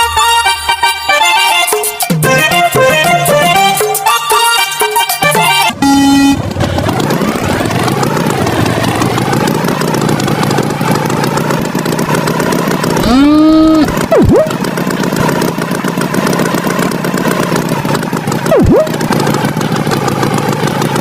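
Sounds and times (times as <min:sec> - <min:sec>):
cartoon vehicle engine running: 0:00.0 - 0:21.0
short steady tone: 0:05.4 - 0:06.4, 0:18.5 - 0:18.9.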